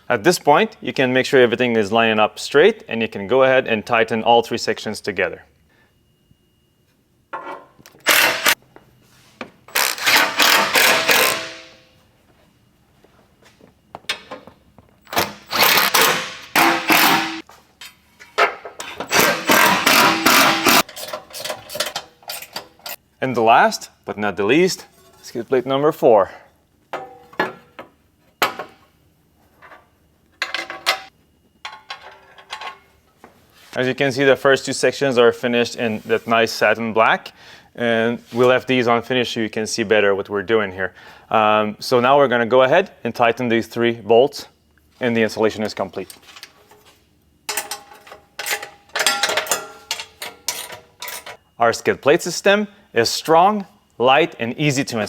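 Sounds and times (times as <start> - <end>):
tool tightening bolts: 7.9 - 8.6, 9.7 - 11.8, 15.1 - 17.4, 18.8 - 23.0
rapid ratcheting: 19.1 - 20.8.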